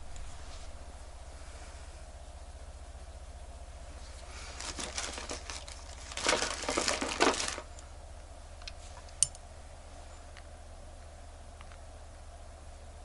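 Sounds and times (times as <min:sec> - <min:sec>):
wrapping material crinkling: 0:04.2 - 0:07.8.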